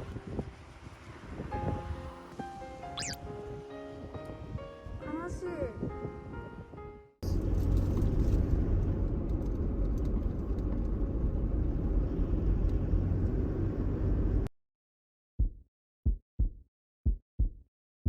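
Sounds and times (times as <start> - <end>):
motor vehicle rumbling: 7.2 - 14.5.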